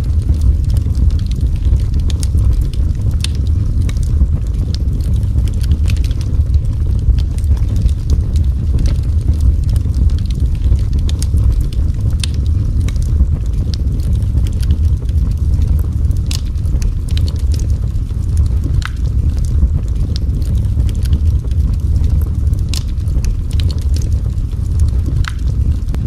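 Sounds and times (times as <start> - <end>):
fire crackles and pops: 0.0 - 26.0
fireplace fire roaring: 0.0 - 26.0.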